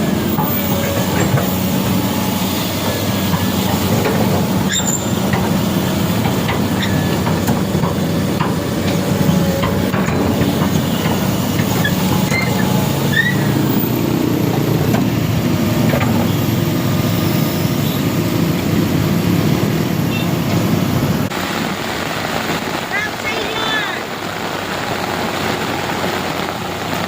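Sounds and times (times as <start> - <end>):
heavy vehicle engine running: 0.0 - 27.0
short high squeaks: 4.6 - 5.2, 11.7 - 14.0.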